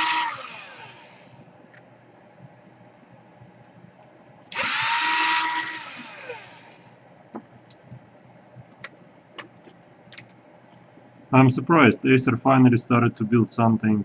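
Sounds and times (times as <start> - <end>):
electric screwdriver motor whine: 0.0 - 1.4, 4.5 - 6.9.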